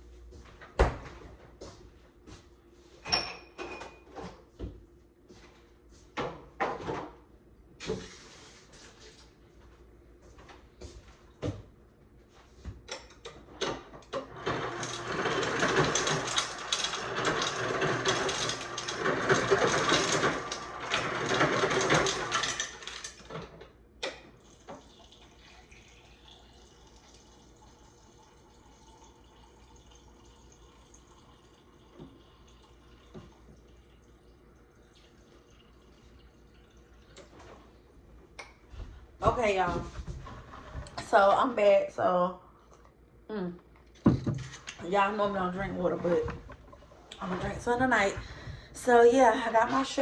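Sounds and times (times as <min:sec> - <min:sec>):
tap water filling glass: 0:24.0 - 0:37.5.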